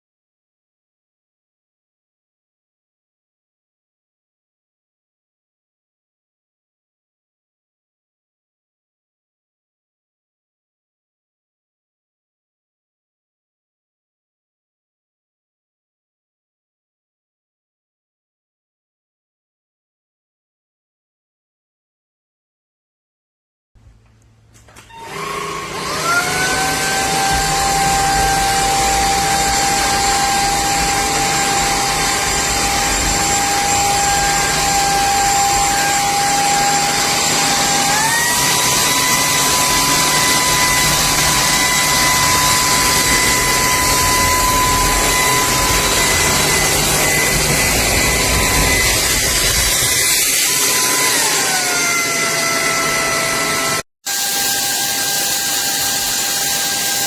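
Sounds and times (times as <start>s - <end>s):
vacuum cleaner motor whine: 24.7s - 57.0s.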